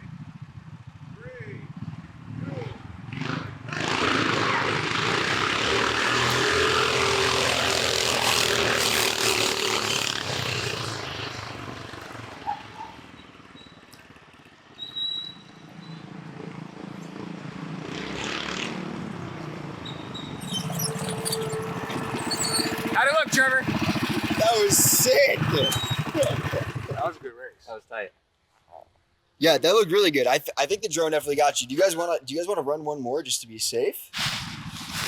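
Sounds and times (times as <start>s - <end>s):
go-kart engines at full throttle: 1.8s - 15.1s, 16.3s - 27.2s.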